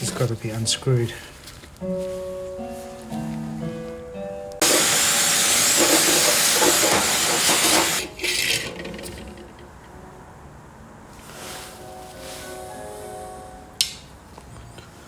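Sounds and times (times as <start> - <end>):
pressurised gas hissing: 4.6 - 8.8.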